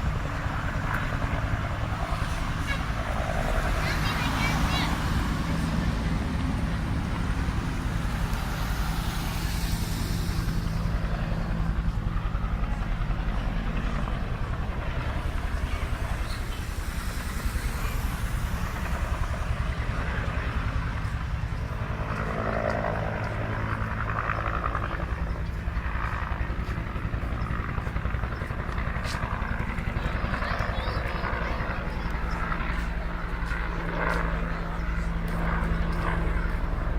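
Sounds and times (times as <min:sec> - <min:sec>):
helicopter rotor and engine: 0:00.0 - 0:36.9.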